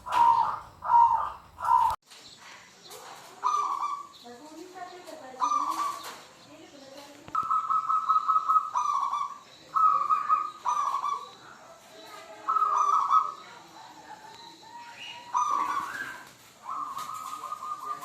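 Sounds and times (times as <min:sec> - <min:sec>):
dove cooing trilled notes: 0:00.0 - 0:02.0, 0:03.4 - 0:04.1, 0:05.4 - 0:06.1, 0:07.3 - 0:11.5, 0:12.3 - 0:13.6, 0:14.6 - 0:18.0
small birds chirping: 0:00.0 - 0:18.0.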